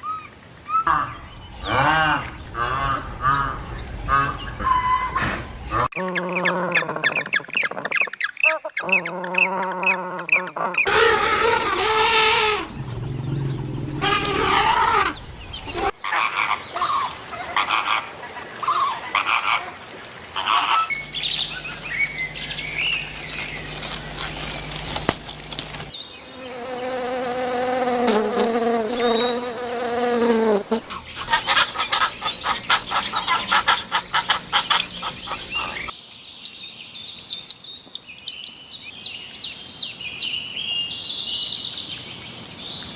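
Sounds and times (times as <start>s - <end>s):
animal cries and chirps: 4.6s - 17.0s.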